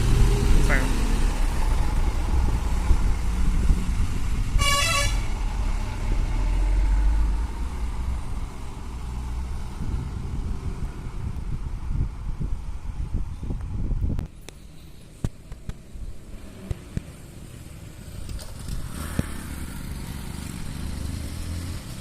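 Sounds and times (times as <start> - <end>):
heavy lorry engine rumbling: 0.0 - 13.9
horn blast: 4.5 - 5.4.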